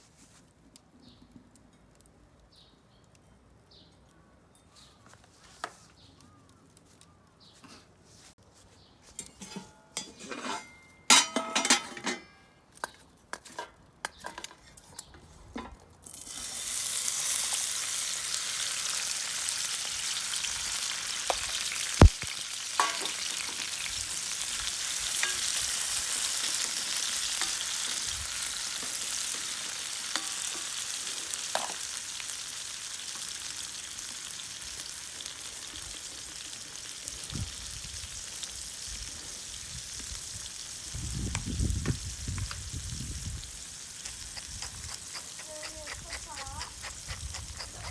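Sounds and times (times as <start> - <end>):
metal clinks and knocks: 9.2 - 12.6
food sizzling in a frying pan: 16.1 - 47.9.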